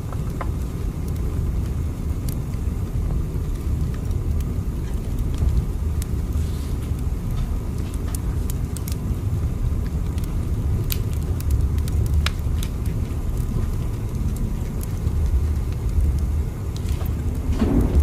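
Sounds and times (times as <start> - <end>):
faint clicks and ticks: 9.7 - 18.0
train rumbling: 16.9 - 18.0.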